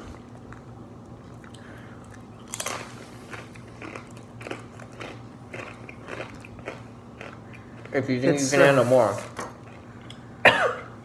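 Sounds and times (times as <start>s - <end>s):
person chewing: 0.0s - 8.0s
cheese bite crunch: 0.2s - 7.9s.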